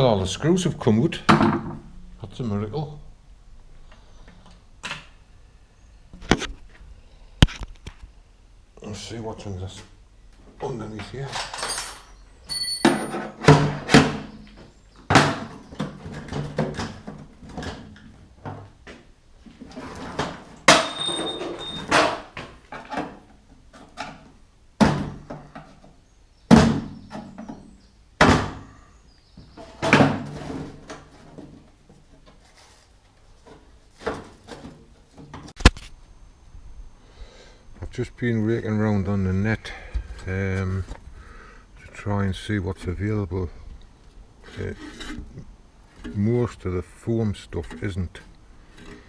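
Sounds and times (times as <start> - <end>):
parts knocking and scraping: 10.6 - 27.7, 44.4 - 49.0.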